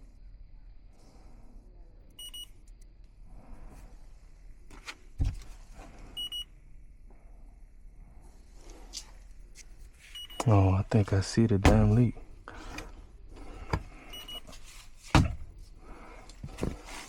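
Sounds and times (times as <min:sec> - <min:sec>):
short electronic beeps: 0:02.2 - 0:02.5, 0:06.2 - 0:06.5, 0:10.1 - 0:10.6, 0:14.1 - 0:14.5
thump: 0:05.2 - 0:05.5, 0:15.1 - 0:15.6.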